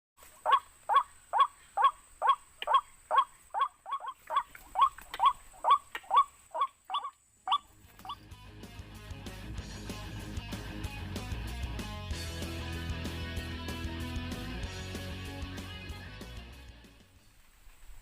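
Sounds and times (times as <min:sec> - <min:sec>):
waterhen calling harsh notes: 0:00.4 - 0:08.2.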